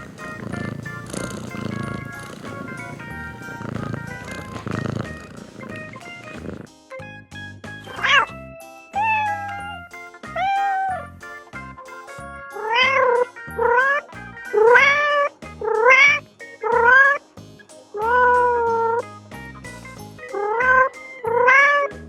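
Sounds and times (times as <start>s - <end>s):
background music: 0.0s - 22.0s
cat meowing: 9.0s - 9.8s, 10.4s - 11.1s, 12.6s - 13.2s, 21.4s - 21.9s.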